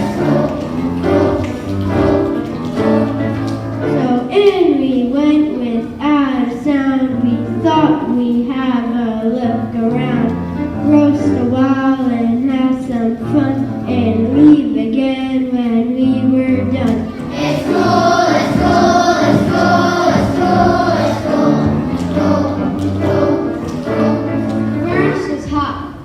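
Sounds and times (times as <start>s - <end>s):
children's choir singing: 0.0s - 4.0s, 17.0s - 25.3s
instrumental accompaniment: 0.0s - 5.8s, 16.0s - 25.6s.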